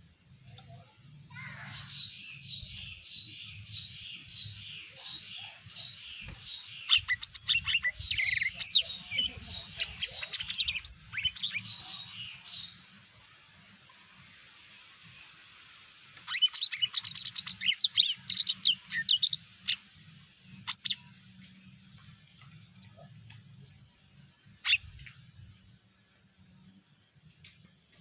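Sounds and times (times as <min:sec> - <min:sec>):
leafbird singing: 0:00.1 - 0:12.9, 0:16.2 - 0:21.2, 0:24.5 - 0:25.0.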